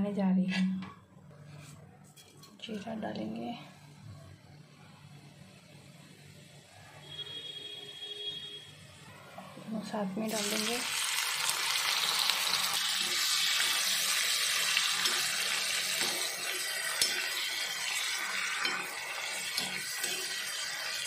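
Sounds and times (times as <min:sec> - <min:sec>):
onion and tomato sizzling in oil: 0:09.6 - 0:21.0
steel spoon scraping a pan: 0:12.8 - 0:21.0.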